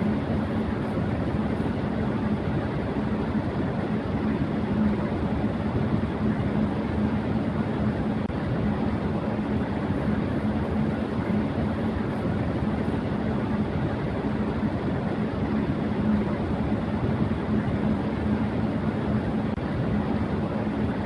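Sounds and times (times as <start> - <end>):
electric fan air rush: 0.0 - 21.0
low motor hum: 0.0 - 21.0.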